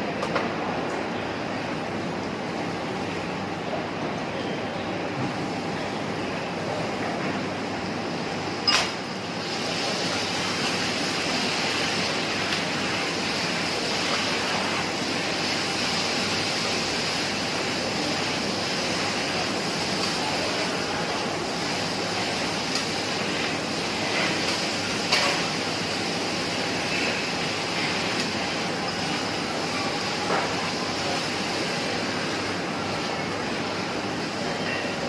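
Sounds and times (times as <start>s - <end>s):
food sizzling on a griddle: 9.2s - 35.0s.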